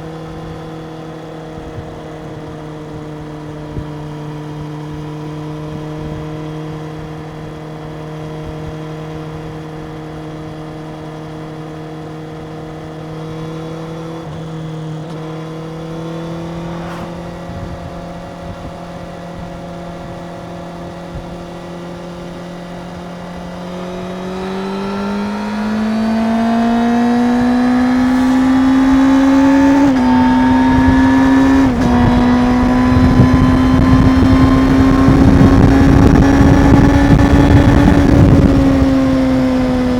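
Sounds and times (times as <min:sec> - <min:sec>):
motorcycle engine revving: 0:00.0 - 0:39.9
wind rush: 0:15.7 - 0:21.5, 0:25.4 - 0:39.9.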